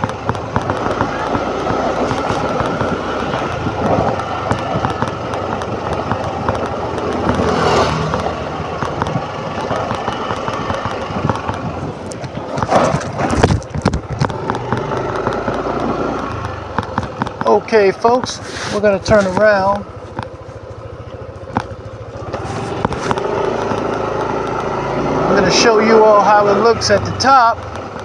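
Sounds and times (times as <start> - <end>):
wind buffeting microphone: 0.0 - 24.1
motor scooter engine running: 0.0 - 28.0.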